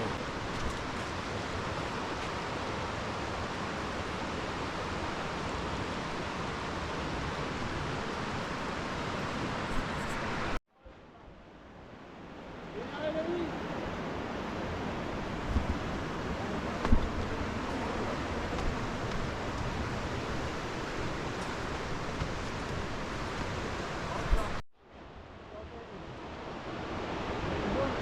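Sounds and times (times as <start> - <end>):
rushing water roar: 0.0 - 28.0.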